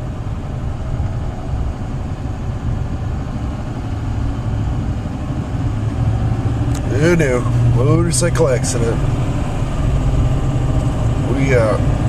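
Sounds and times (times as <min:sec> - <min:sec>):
car engine rumble: 0:00.0 - 0:12.0
road noise inside car: 0:00.0 - 0:12.0.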